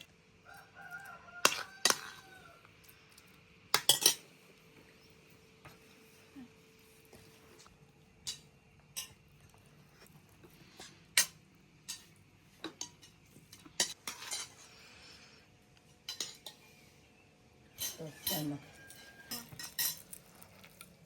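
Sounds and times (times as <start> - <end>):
cutlery clinking on plates: 3.8 - 4.3, 8.3 - 9.2, 10.8 - 14.6, 16.1 - 16.7, 17.7 - 20.2.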